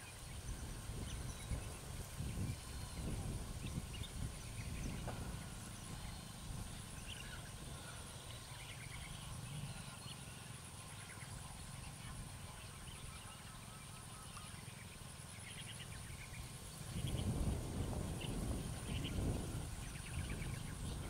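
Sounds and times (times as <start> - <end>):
faint bird chirps and trills: 0.0 - 21.0.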